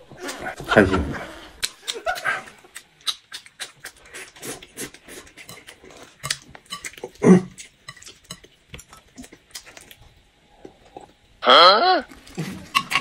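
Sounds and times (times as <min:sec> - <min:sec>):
wet mouth clicks: 0:01.6 - 0:05.1
chewing crunchy food: 0:01.6 - 0:11.2.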